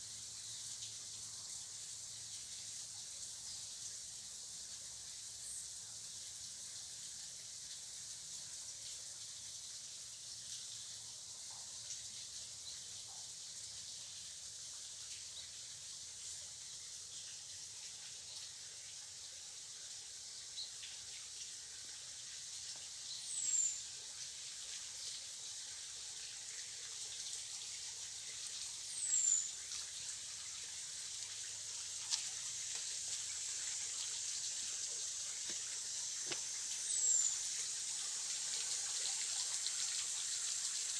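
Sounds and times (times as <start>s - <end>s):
steady high hiss: 27.3s - 40.9s.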